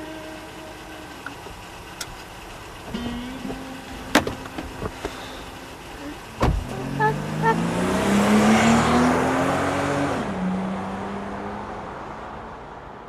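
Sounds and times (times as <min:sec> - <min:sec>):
heavy thump: 0:02.9 - 0:05.2, 0:06.4 - 0:06.7.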